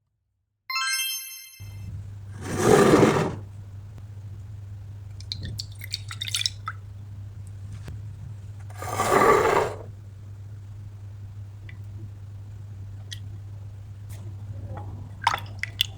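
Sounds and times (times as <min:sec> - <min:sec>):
light drips and ticks: 0:05.0 - 0:07.9, 0:11.6 - 0:12.0, 0:13.0 - 0:13.4, 0:14.1 - 0:15.9.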